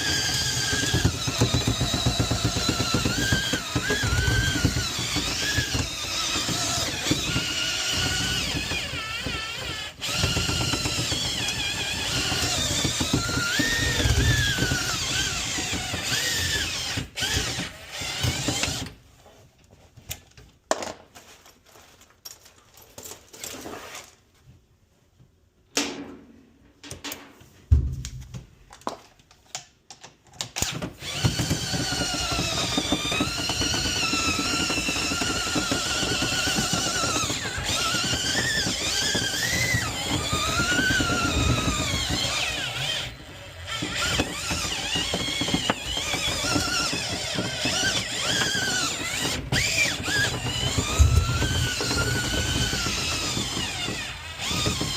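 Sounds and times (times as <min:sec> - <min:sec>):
power drill whining: 0:00.0 - 0:19.0, 0:30.5 - 0:54.9
clicks and knocks: 0:25.7 - 0:30.6.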